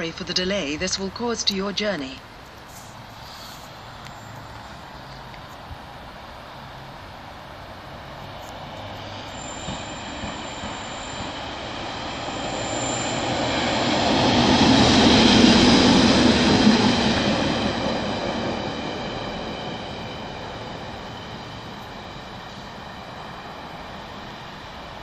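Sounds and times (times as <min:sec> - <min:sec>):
rail rumble: 0:00.0 - 0:25.0
train wheel squeal: 0:08.2 - 0:25.0.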